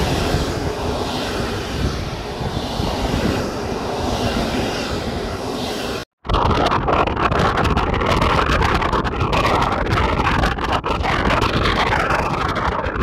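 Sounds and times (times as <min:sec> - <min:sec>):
train passing: 0:00.0 - 0:06.1
wind buffeting microphone: 0:00.0 - 0:13.0.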